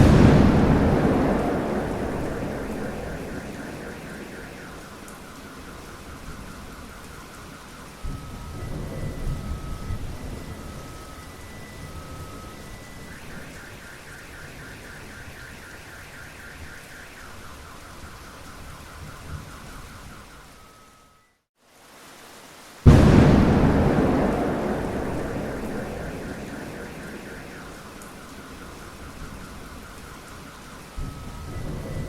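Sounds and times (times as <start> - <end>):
thunder rumbling: 0.0 - 6.6, 22.8 - 30.4
electronic alarm pulsing and beeping: 0.0 - 7.4, 23.4 - 32.0
heavy rain: 0.0 - 20.3, 21.6 - 32.0.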